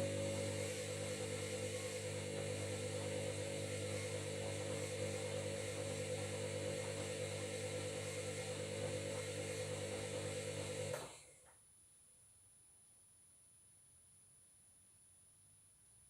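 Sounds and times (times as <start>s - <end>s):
washing machine whirring hum: 0.0s - 11.4s.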